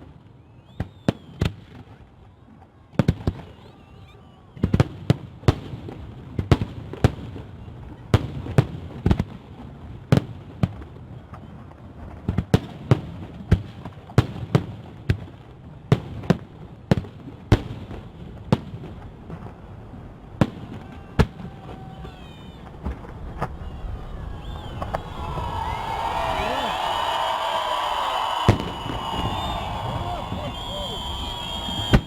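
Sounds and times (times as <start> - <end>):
firework bangs: 20.3 - 32.0.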